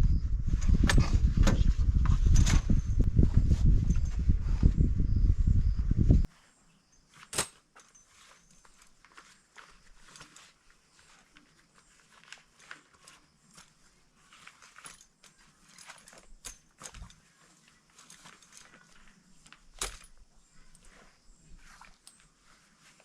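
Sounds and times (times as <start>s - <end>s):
rustling: 6.2s - 23.0s.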